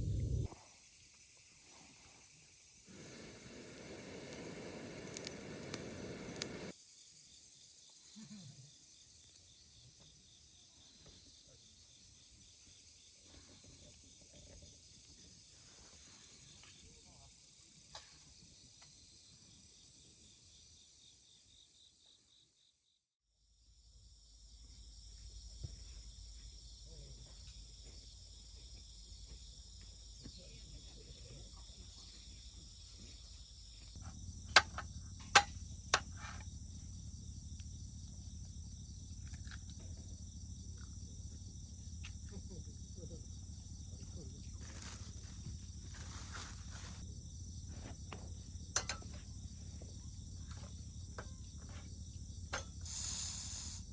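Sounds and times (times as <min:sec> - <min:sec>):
low rumble: 0:00.0 - 0:00.5
crickets chirring: 0:00.0 - 0:53.9
sharp clicks: 0:04.3 - 0:06.7.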